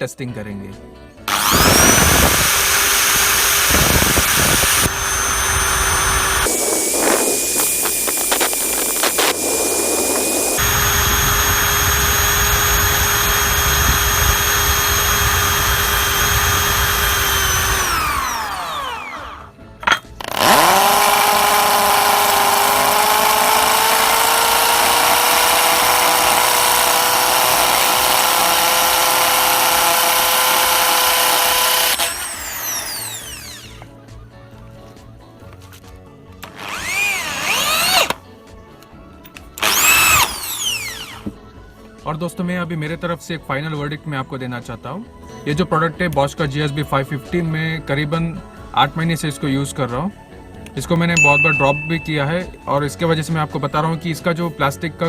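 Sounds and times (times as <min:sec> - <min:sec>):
impact drill motor whine: 0:01.3 - 0:33.9, 0:36.4 - 0:38.2, 0:39.6 - 0:41.4.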